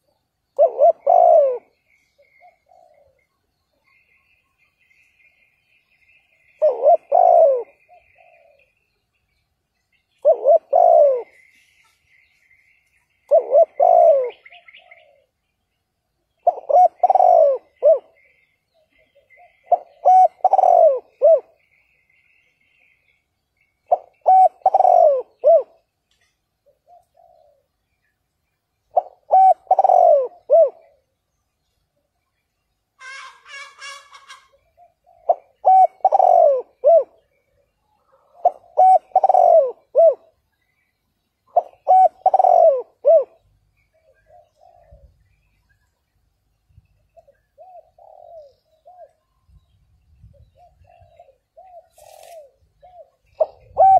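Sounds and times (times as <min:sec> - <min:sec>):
dove cooing: 0:00.0 - 0:04.2, 0:06.2 - 0:08.8, 0:10.0 - 0:11.6, 0:13.2 - 0:15.4, 0:16.4 - 0:21.6, 0:23.8 - 0:25.9, 0:26.6 - 0:27.8, 0:28.9 - 0:31.2, 0:33.0 - 0:40.4, 0:41.5 - 0:45.6, 0:47.1 - 0:49.6, 0:50.2 - 0:53.9
faint bird chirping: 0:00.0 - 0:53.9.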